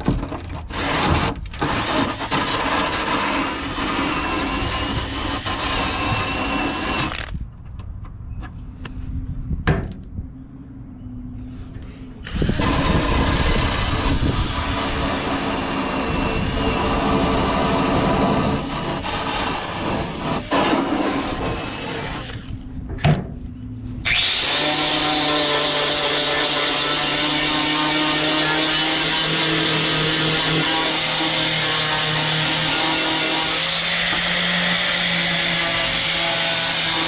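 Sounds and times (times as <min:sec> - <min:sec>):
power tool grinding metal: 0:00.6 - 0:07.4, 0:12.3 - 0:22.5, 0:24.0 - 0:37.0.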